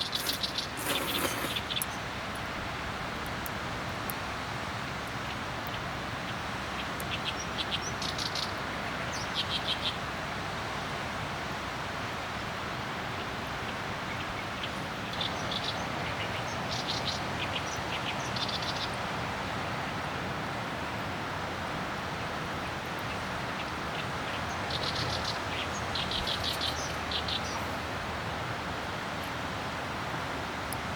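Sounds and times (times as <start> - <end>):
small birds chirping: 0.0 - 2.5, 13.2 - 19.0, 22.6 - 27.8.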